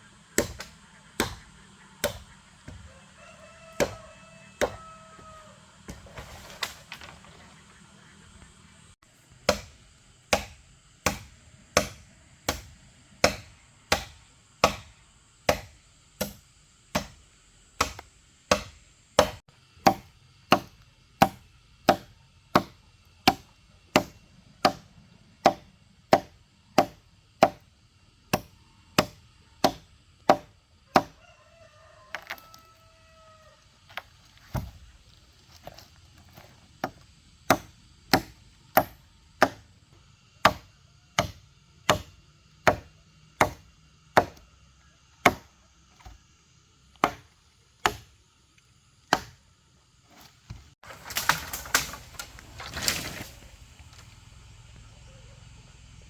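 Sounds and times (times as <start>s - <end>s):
tool chopping wood: 0.3s - 2.9s, 3.7s - 4.0s, 4.6s - 4.8s, 9.4s - 14.9s, 15.5s - 17.2s, 17.8s - 27.7s, 28.3s - 31.2s, 34.0s - 34.8s, 35.6s - 39.7s, 40.4s - 44.5s, 45.2s - 46.2s, 46.9s - 48.2s, 49.1s - 49.4s
rooster crowing: 2.7s - 5.9s, 30.8s - 33.7s.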